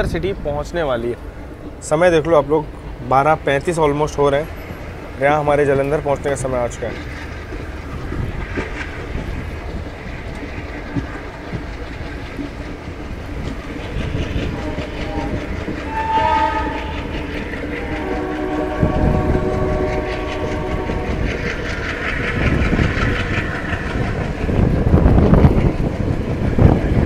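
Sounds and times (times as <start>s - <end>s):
wheels clattering over rails: 0.0s - 27.0s
locomotive horn blasts: 14.5s - 17.0s, 17.8s - 21.2s.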